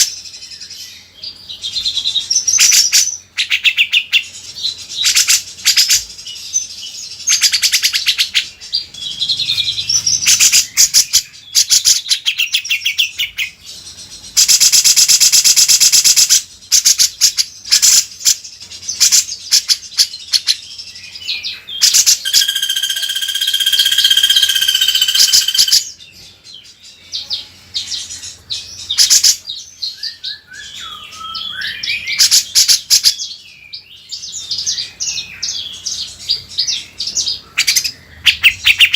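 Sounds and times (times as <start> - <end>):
bird chirps and trills: 0.0 - 38.9
loud buzzing rattle: 9.0 - 11.4, 22.2 - 25.8.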